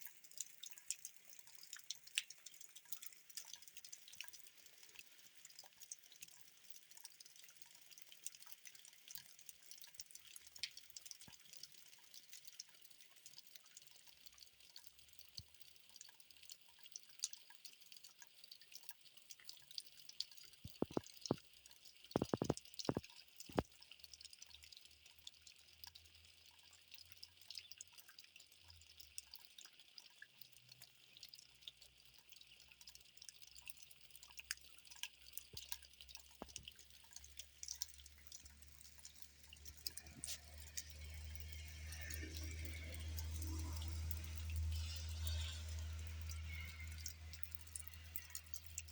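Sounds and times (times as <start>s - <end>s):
rain pattering: 20.2s - 26.0s, 32.3s - 48.9s
close drips or knocks: 20.6s - 21.5s, 22.1s - 23.7s, 35.4s - 48.9s.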